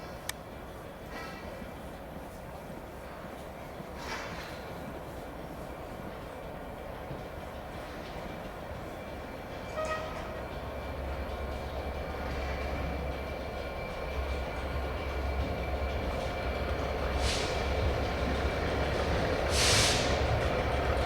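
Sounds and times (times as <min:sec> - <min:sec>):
train running through station: 0:00.0 - 0:21.0
air hissing: 0:17.2 - 0:17.8, 0:19.5 - 0:20.3.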